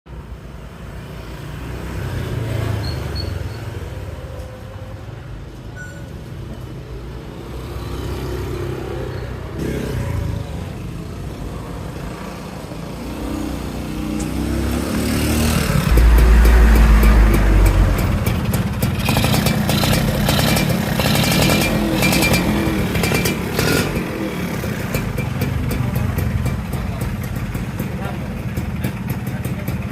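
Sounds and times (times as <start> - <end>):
two-stroke engine revving: 7.5 - 11.0, 11.7 - 29.9.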